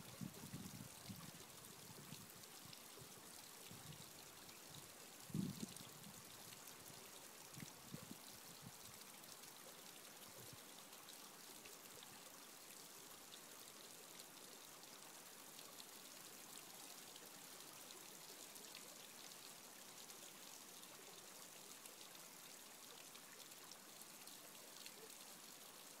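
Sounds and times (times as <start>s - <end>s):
brook babbling: 0.0s - 26.0s.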